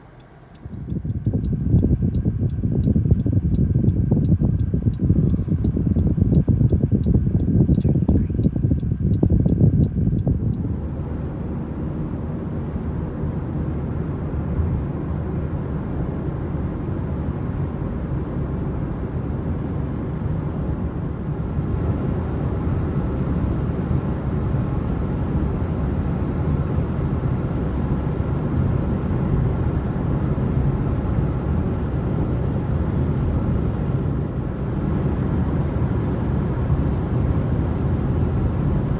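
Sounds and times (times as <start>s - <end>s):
regular ticking: 0.0s - 10.7s
car road and tyre noise: 0.0s - 38.9s.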